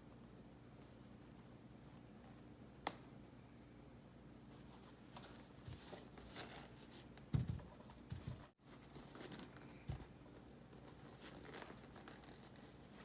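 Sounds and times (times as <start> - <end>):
dull thumps: 7.3 - 8.5.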